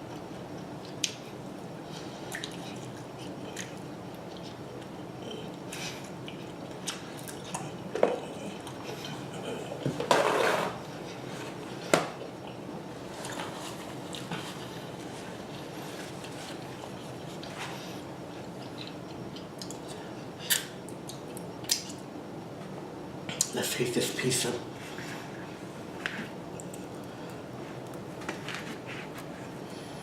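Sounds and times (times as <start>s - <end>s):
wet chewing mouth clicks: 2.3s - 4.6s.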